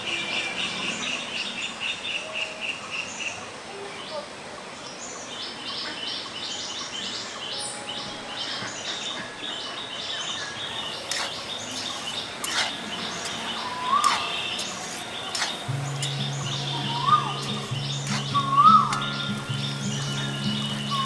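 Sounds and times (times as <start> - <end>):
birds chirping: 5.4 - 21.0.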